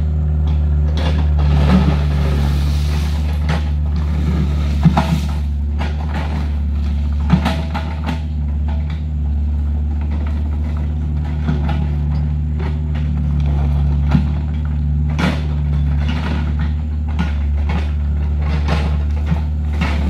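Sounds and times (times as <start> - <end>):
diesel engine running: 0.0 - 20.0
low even hum: 0.0 - 20.0.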